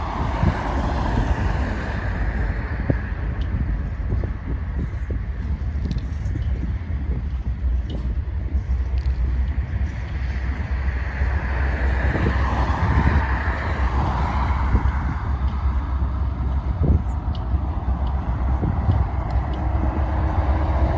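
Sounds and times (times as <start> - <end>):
freight train wheels rumbling: 0.0 - 20.9
rushing sound: 9.2 - 20.9.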